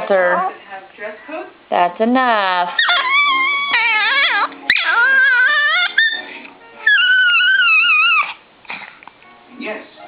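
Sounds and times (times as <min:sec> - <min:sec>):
dog whining and howling: 0:02.7 - 0:08.4.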